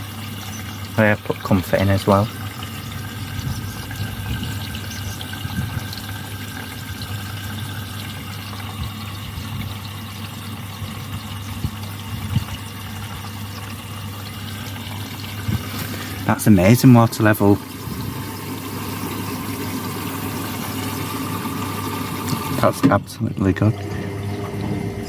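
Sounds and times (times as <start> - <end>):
water rushing into drum: 0.0 - 25.0
low hum: 2.3 - 6.2.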